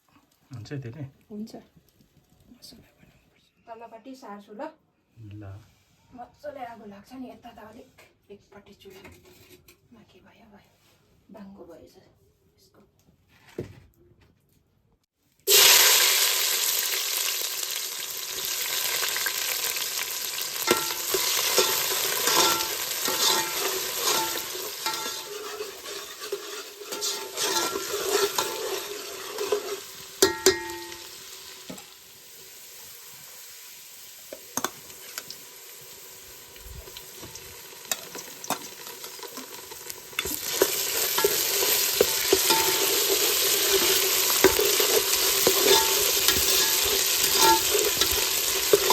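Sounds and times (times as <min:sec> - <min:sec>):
spoon scraping a pot: 0:08.9 - 0:09.8, 0:20.6 - 0:31.1, 0:37.2 - 0:48.9
hot oil sizzling in a pot: 0:15.4 - 0:48.9.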